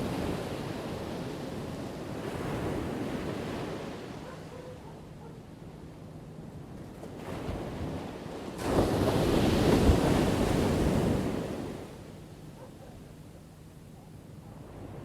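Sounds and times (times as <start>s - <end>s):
ocean waves breaking: 7.1s - 11.9s.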